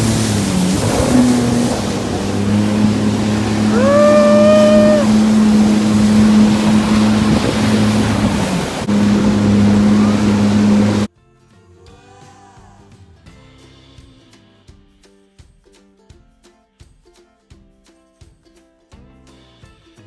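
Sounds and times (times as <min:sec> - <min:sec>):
jet ski engine running: 0:00.0 - 0:11.1
wind and water noise: 0:00.0 - 0:11.1
high rising whoop: 0:00.8 - 0:10.4.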